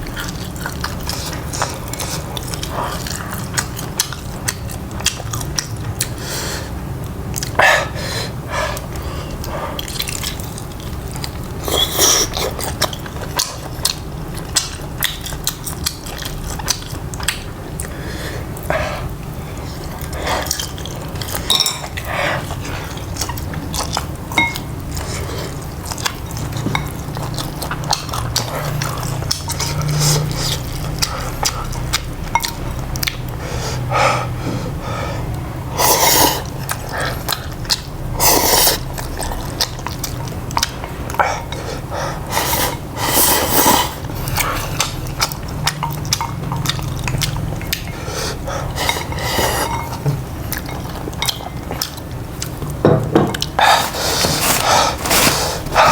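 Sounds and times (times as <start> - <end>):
biting and chewing: 0.0 - 6.2, 8.8 - 18.0, 19.0 - 33.4, 36.4 - 55.9
steady low hum: 0.0 - 55.9
dishes and cutlery clicking: 21.2 - 22.0, 24.3 - 24.7.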